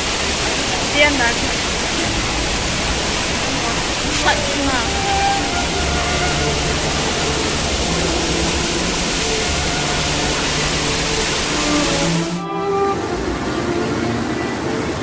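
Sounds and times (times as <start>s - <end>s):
loud steady rushing noise: 0.0s - 15.0s.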